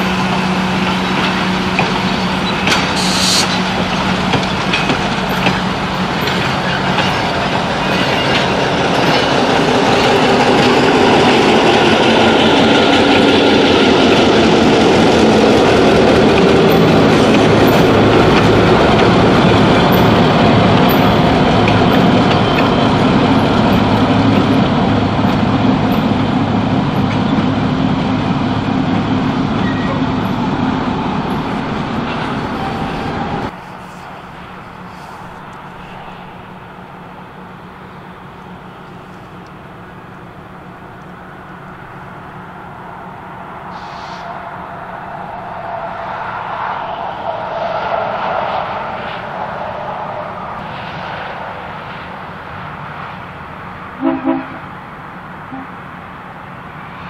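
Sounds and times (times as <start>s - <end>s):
train wheels clicking over rail joints: 0.0s - 33.6s
diesel locomotive engine: 0.0s - 57.0s.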